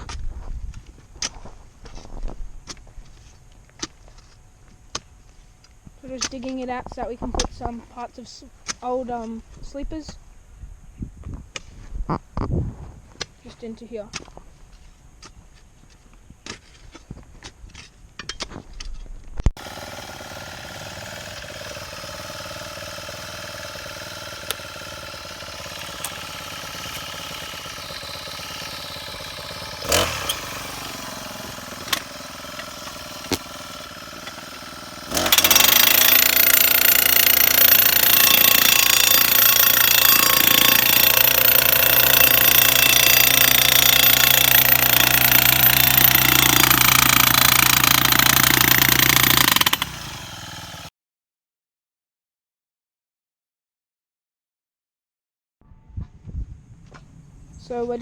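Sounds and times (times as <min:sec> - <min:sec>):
soil tamper engine hammering: 0:19.6 - 0:50.9.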